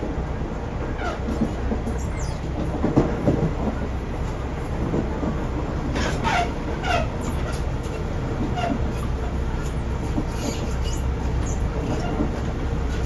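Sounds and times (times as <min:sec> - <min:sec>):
train low rumble: 0:00.0 - 0:13.0
wheel clatter over rail joints: 0:00.8 - 0:13.0
train wheel squeaks: 0:01.0 - 0:02.5, 0:05.9 - 0:13.0.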